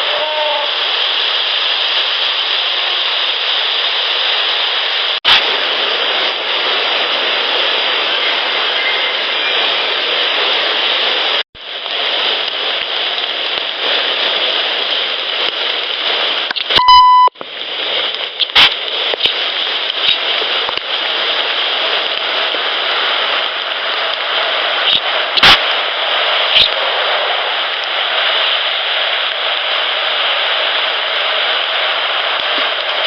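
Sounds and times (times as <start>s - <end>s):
steady rain hiss: 0.0s - 33.0s
short electronic beep: 16.8s - 17.4s.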